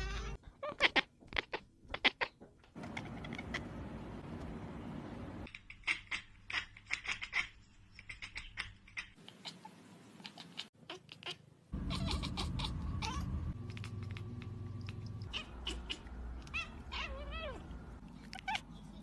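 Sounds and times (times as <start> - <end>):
cat meowing: 10.3 - 13.5, 15.2 - 17.7
steady low hum: 11.8 - 19.0.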